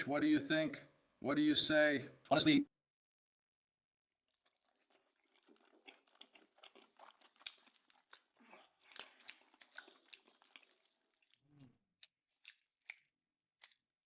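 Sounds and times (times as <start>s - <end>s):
chewing sandwich: 4.2s - 14.0s
wet smacking: 4.4s - 14.0s.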